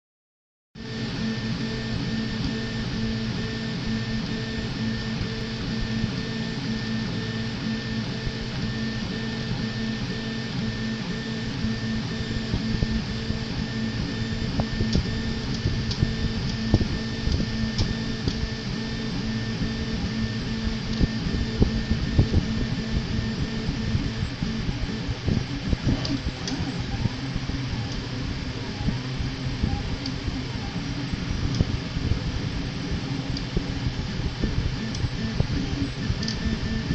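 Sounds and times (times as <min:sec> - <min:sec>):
stepper motors humming and whining: 0:00.8 - 0:36.9
small clicks and ticks: 0:36.2 - 0:36.5.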